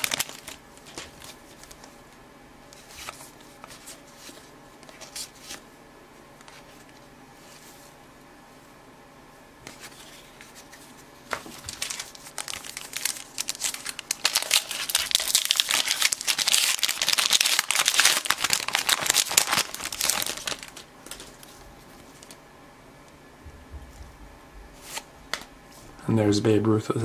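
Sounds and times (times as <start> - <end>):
plastic wrapper tearing and crinkling: 0.0 - 1.8, 11.6 - 21.4.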